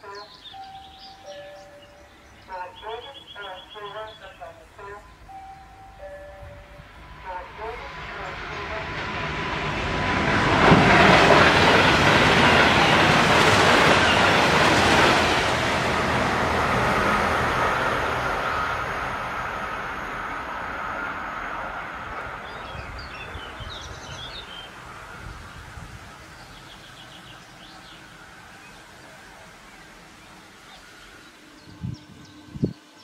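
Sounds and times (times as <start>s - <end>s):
bird chirps: 0.0s - 6.5s
train wheels rushing on rails: 5.2s - 31.7s.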